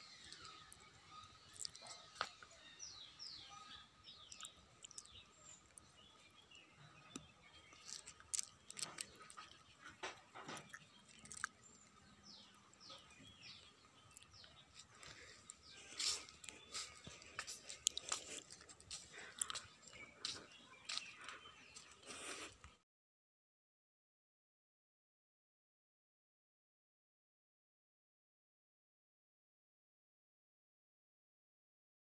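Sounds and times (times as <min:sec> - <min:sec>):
small birds chirping: 0:00.0 - 0:22.8.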